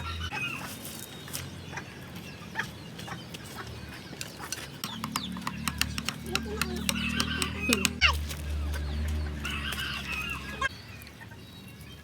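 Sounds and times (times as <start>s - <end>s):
chickens clucking: 0.0s - 11.4s
sharp clicks and taps: 4.2s - 8.2s.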